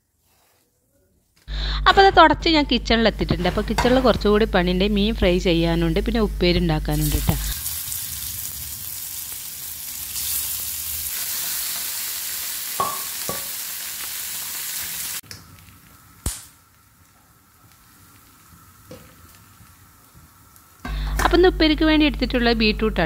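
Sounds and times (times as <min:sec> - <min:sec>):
fish sizzling in hot oil: 0:06.9 - 0:21.4.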